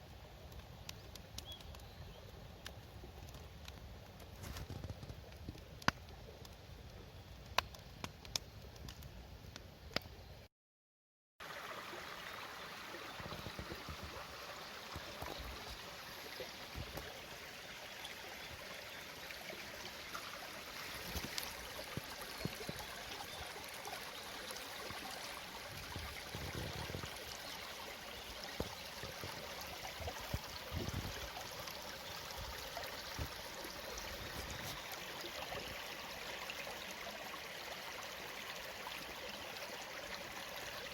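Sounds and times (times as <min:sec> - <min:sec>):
stream babbling over stones: 0:11.4 - 0:40.9.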